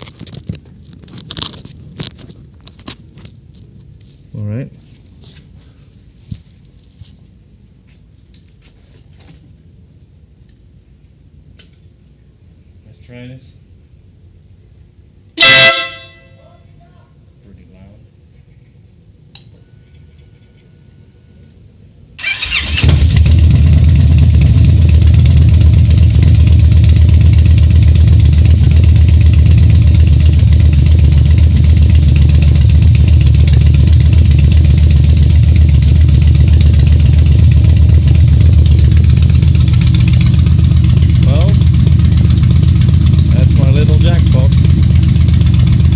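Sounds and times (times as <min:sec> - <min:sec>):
click: 0:19.3 - 0:20.0
motorcycle engine running: 0:22.2 - 0:45.9.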